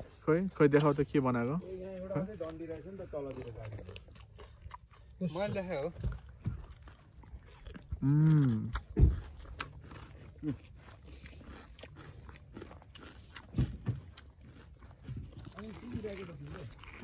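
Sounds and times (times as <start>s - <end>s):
person chewing crunchy food: 0.8s - 17.0s
person humming: 8.0s - 8.8s
thump: 9.0s - 9.2s.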